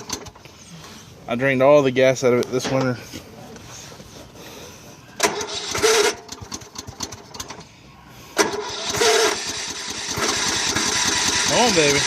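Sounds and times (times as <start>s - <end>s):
electric starter cranking engine: 5.2s - 7.6s, 8.4s - 12.0s.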